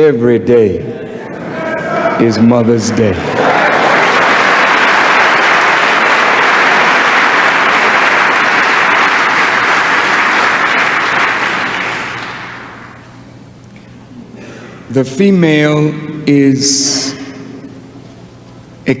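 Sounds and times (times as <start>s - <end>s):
audience applauding and cheering: 3.1s - 13.1s.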